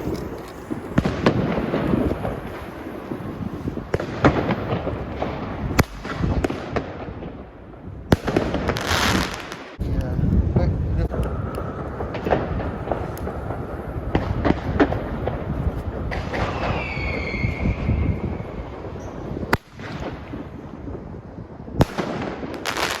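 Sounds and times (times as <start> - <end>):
crackling firework bangs: 0.0 - 23.0
whistling rockets: 11.1 - 20.6.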